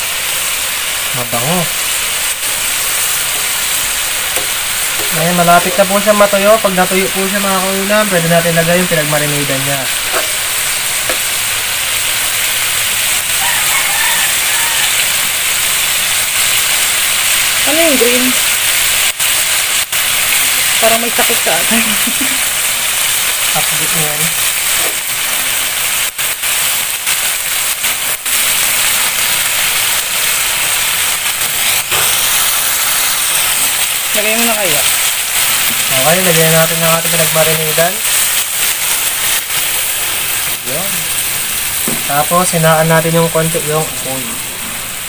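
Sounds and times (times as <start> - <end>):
chicken livers sizzling in a wok: 0.0 - 45.0
metal spatula stirring: 4.4 - 6.2, 9.9 - 11.3
distant rooster crowing: 13.2 - 15.5.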